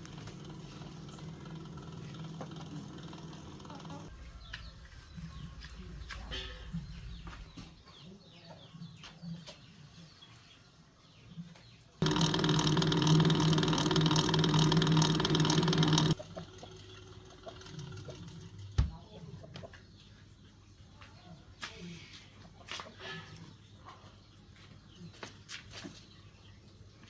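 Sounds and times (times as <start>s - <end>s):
loud machine hum: 0.0s - 5.7s, 12.0s - 18.6s.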